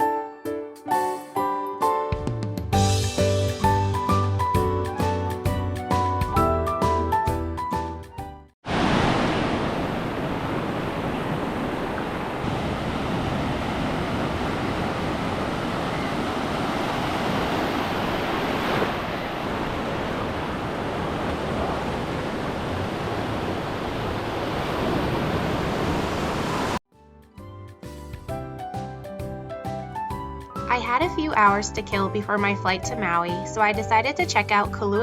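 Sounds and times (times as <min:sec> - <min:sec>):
ocean surf on beach: 0:08.6 - 0:26.8.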